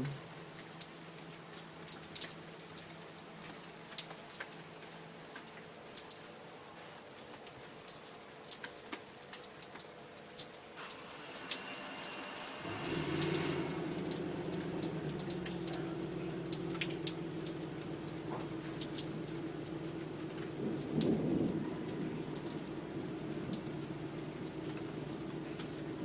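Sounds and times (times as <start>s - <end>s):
rain falling: 0.0s - 26.0s
low steady sound: 13.3s - 26.0s.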